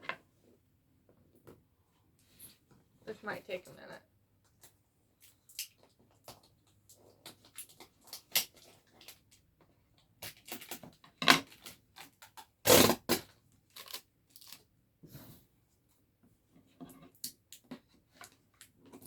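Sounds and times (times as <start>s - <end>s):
scissors scraping packing tape: 11.5s - 14.6s
tape tearing: 11.5s - 14.6s.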